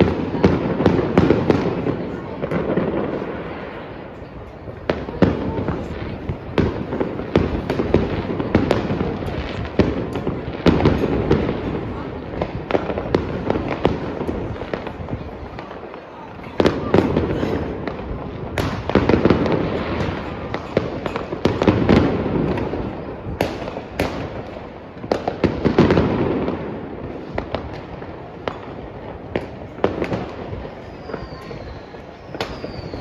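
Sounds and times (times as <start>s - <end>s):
fireworks bangs and crackling: 0.0s - 33.0s
rumble of distant explosions: 0.0s - 33.0s
faint falling whistle: 30.8s - 33.0s.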